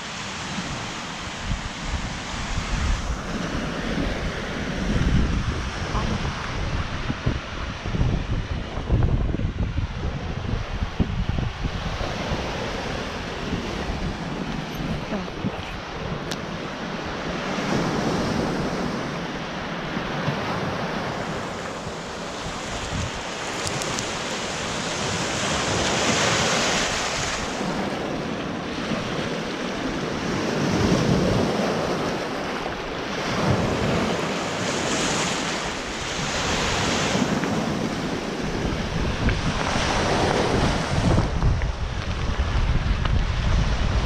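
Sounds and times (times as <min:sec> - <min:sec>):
small waves washing onto shore: 0:00.0 - 0:44.0
wind buffeting microphone: 0:00.0 - 0:44.0.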